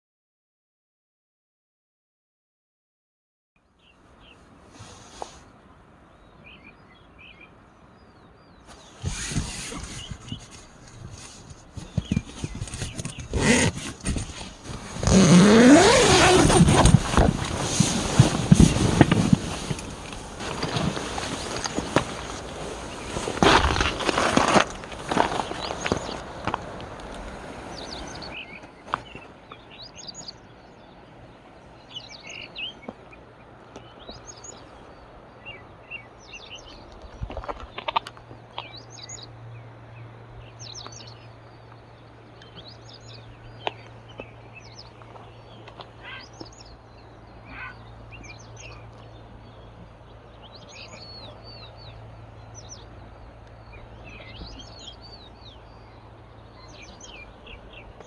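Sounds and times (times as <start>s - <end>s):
small birds chirping: 6.1s - 20.2s, 27.7s - 58.0s.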